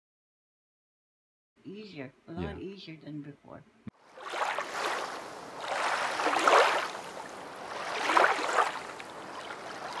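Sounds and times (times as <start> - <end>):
rushing water surges: 4.1 - 10.0.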